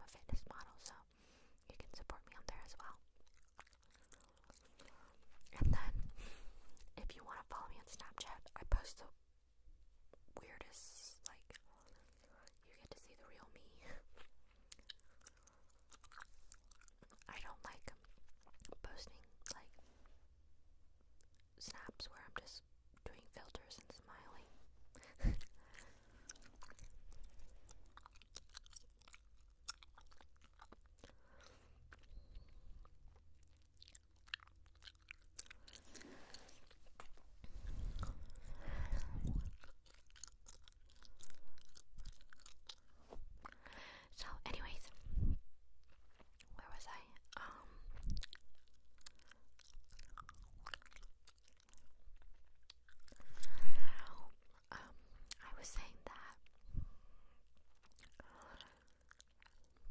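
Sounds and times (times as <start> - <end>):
gum chewing smacks: 2.6 - 7.0, 14.1 - 19.8, 24.9 - 43.8, 45.8 - 55.4, 57.5 - 59.9.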